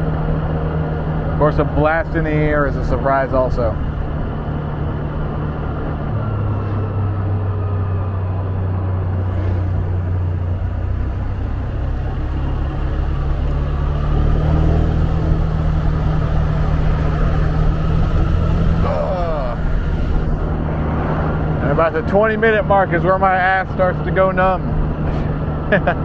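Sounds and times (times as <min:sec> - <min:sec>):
road noise: 0:00.0 - 0:26.0
motorbike engine running: 0:09.2 - 0:20.5
wind noise: 0:09.2 - 0:21.6.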